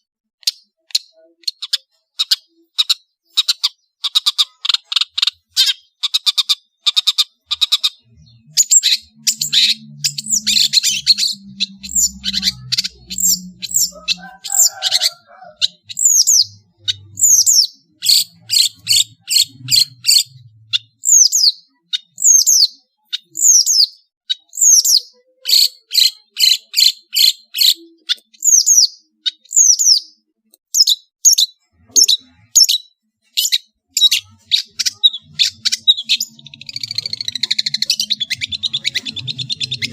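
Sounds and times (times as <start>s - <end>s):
shrike singing: 7.8s - 24.0s, 31.7s - 39.9s.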